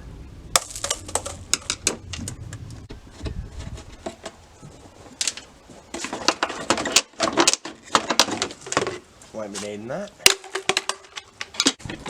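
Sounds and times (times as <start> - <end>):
plastic parts clicking and clattering: 0.6 - 2.4, 5.1 - 9.0, 10.2 - 12.0.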